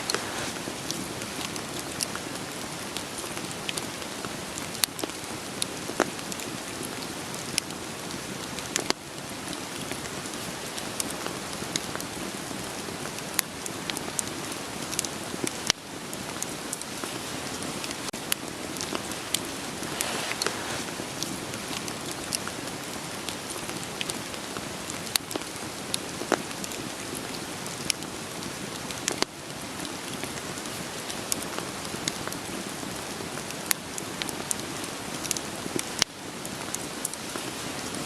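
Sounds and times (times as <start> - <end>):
wood fire crackling: 0.0 - 33.3
rain hissing: 0.0 - 38.0
fire pops and snaps: 17.8 - 22.6.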